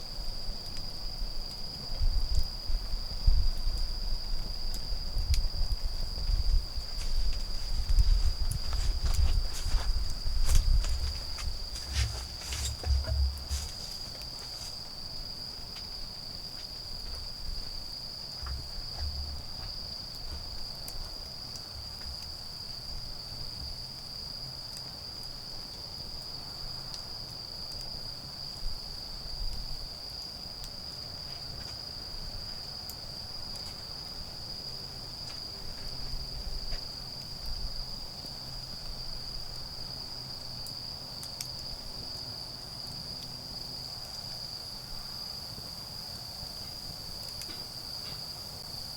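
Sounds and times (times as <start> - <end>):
crickets trilling: 0.0 - 48.9
campfire crackling: 4.1 - 16.9.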